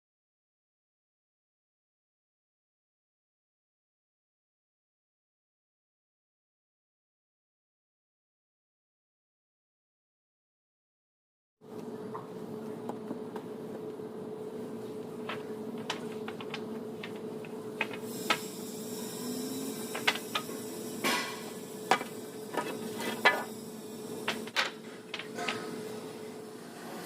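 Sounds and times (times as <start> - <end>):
steady hum: 11.6 - 27.0
knocks and clatter of woodwork: 15.2 - 18.4, 19.9 - 20.5, 21.9 - 23.5, 24.3 - 25.7
hiss: 17.9 - 24.4.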